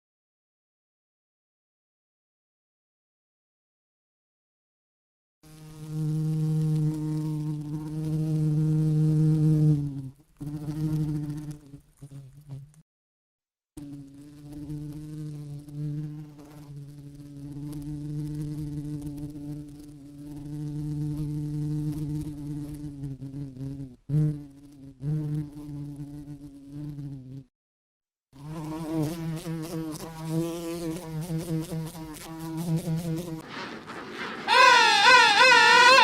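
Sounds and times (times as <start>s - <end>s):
flying insect buzzing: 5.4s - 12.8s, 13.8s - 27.5s, 28.4s - 36.0s.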